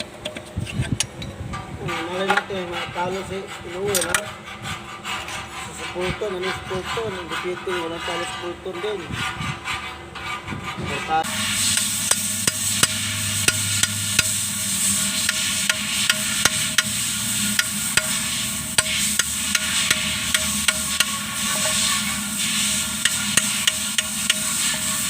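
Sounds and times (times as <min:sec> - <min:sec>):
steady hiss: 0:11.3 - 0:25.0
hand tools tapping and clicking: 0:18.8 - 0:21.1, 0:23.0 - 0:24.4.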